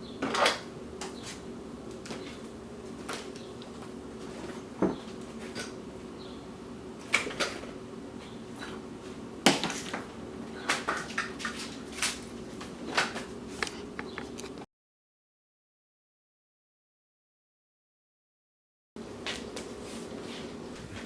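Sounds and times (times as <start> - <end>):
electrical hum: 0.0 - 14.7, 19.0 - 21.0
objects being handled and set down: 12.8 - 14.6.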